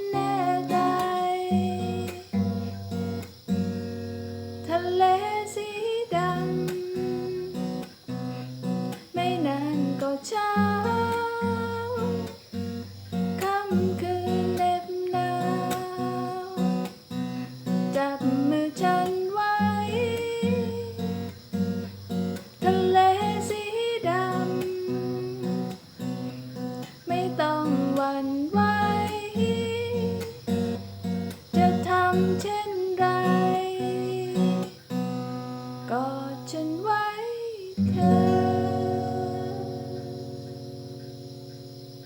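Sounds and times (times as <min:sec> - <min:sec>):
guitar melody with sliding notes: 0:00.0 - 0:36.5, 0:37.8 - 0:42.0.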